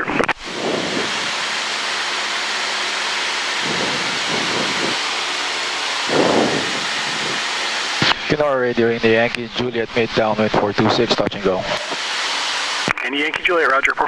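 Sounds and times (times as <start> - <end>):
light aircraft engine running: 0.2 - 13.9
air rushing over airframe: 0.4 - 8.4.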